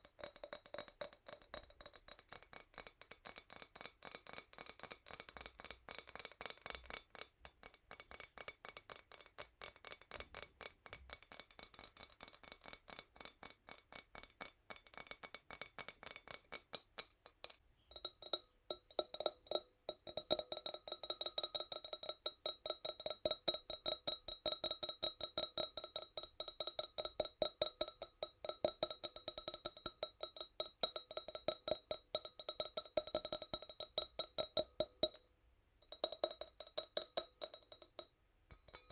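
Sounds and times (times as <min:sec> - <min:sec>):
glass ringing: 0:17.8 - 0:22.6, 0:38.6 - 0:38.9.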